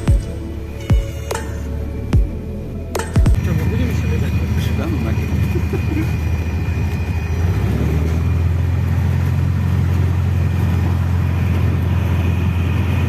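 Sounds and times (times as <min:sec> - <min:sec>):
light aircraft engine drone: 0:00.0 - 0:13.0.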